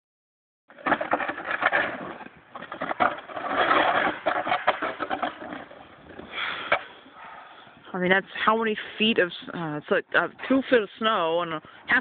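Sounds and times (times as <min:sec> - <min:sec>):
snow and ice being scraped: 0:00.8 - 0:07.0.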